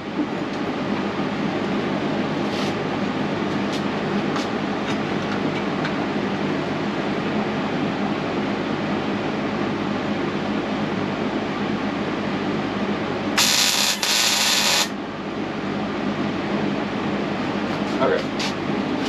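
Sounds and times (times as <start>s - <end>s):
welder electrical hum: 0.0s - 19.0s
welding arc sizzle: 13.4s - 15.0s.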